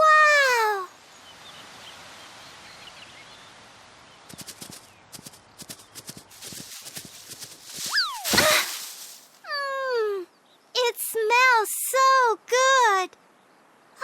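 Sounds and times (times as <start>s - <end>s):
soft outdoor hiss: 0.0s - 14.0s.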